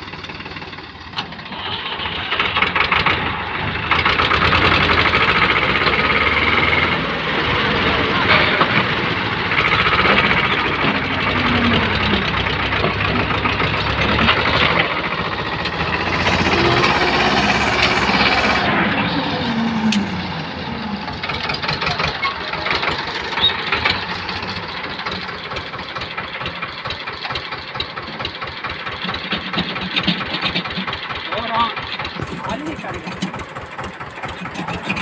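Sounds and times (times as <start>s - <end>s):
tractor engine revving: 0.0s - 35.0s.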